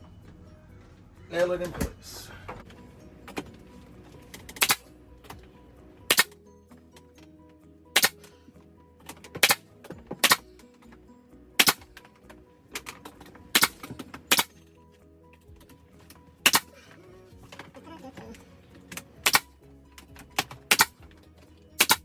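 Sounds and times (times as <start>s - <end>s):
background music: 0.0s - 22.0s
nail gun shots: 6.1s - 6.3s, 8.0s - 8.2s, 9.4s - 9.6s, 10.2s - 10.4s, 11.6s - 11.9s, 13.6s - 14.5s, 16.4s - 16.7s, 19.2s - 19.5s, 20.4s - 21.0s, 21.8s - 22.0s.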